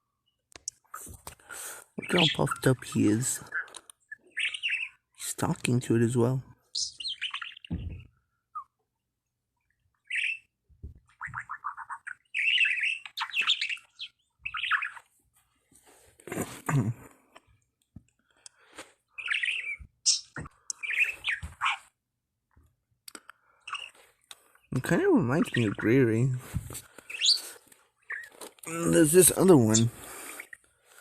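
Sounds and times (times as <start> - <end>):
budgerigar chirping and chattering: 2.0 - 5.1, 6.7 - 8.7, 10.0 - 10.5, 11.1 - 15.1, 19.1 - 21.9, 23.6 - 24.0, 24.8 - 26.3, 27.0 - 30.6.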